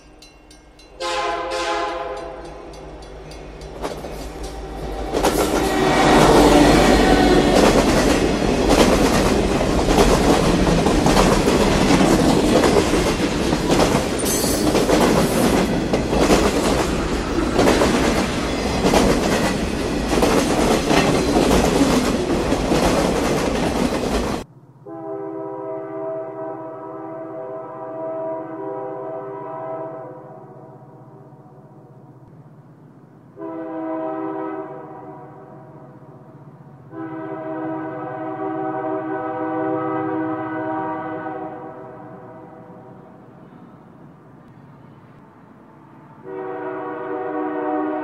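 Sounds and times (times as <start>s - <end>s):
train passing rumbling: 0.0s - 48.0s
train horn: 1.0s - 2.8s, 4.7s - 9.2s, 24.8s - 31.4s, 33.3s - 43.7s, 45.6s - 48.0s.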